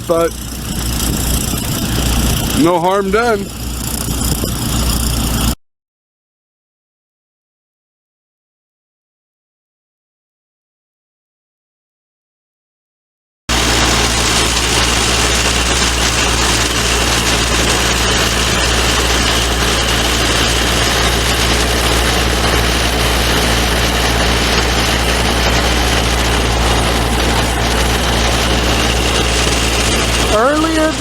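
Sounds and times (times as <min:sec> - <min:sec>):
engine idling: 0:00.0 - 0:05.6, 0:13.5 - 0:31.0.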